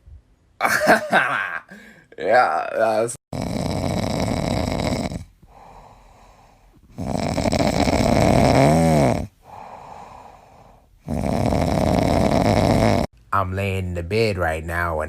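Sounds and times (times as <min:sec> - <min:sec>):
cat snoring loudly: 0:03.3 - 0:13.1
cat breathing quietly: 0:05.4 - 0:07.0, 0:09.4 - 0:11.0.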